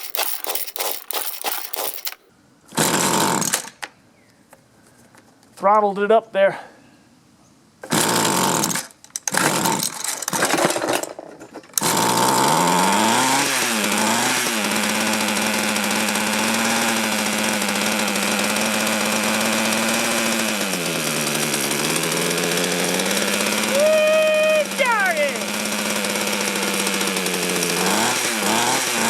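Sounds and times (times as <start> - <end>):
tiller engine sputtering and running: 0.0 - 2.2, 11.8 - 29.0.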